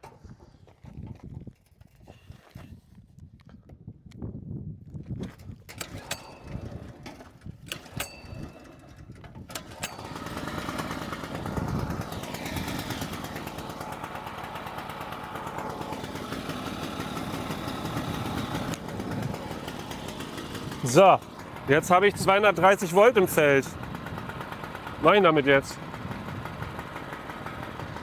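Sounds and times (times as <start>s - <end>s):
generator engine running: 5.7s - 28.0s.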